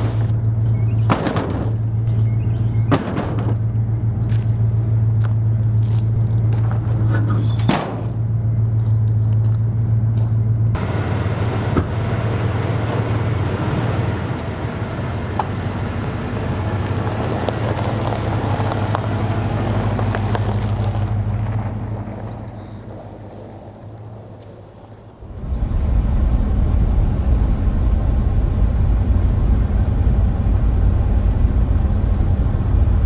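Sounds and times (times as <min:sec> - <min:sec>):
road and wind noise: 0:00.0 - 0:33.0
vehicle engine humming: 0:00.0 - 0:33.0.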